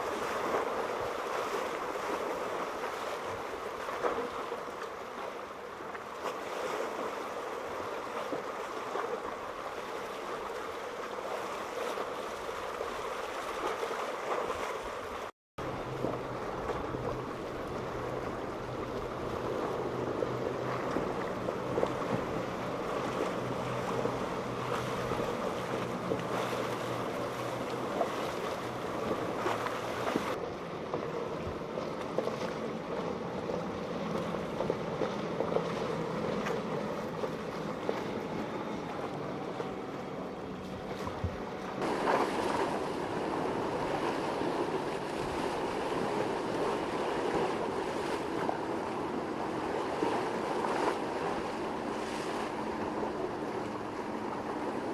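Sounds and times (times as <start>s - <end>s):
boat engines running: 0.0s - 54.9s
surf and waves: 0.0s - 54.9s
wind buffeting microphone: 15.2s - 54.9s.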